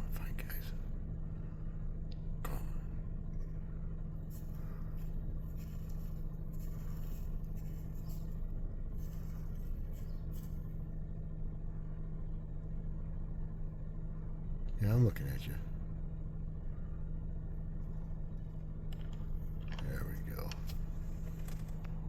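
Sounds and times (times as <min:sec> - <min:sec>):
car engine idling: 0:00.0 - 0:22.0
clicks and rustles of handling: 0:18.9 - 0:22.0.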